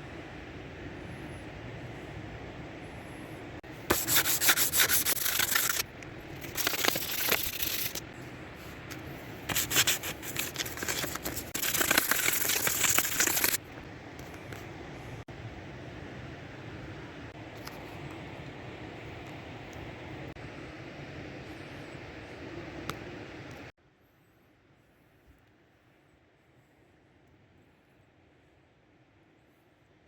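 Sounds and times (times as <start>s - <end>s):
hand sanding with abrasive paper: 3.9s - 8.0s, 8.9s - 13.6s.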